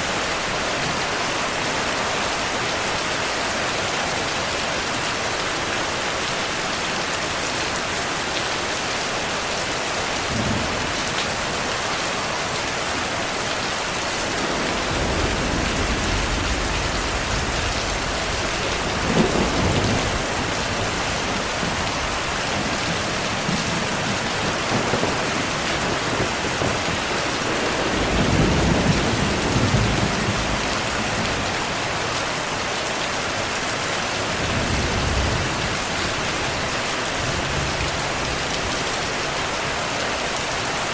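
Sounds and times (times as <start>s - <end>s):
steady rainfall: 0.0s - 40.9s
rolling thunder: 10.2s - 12.2s, 13.6s - 31.8s.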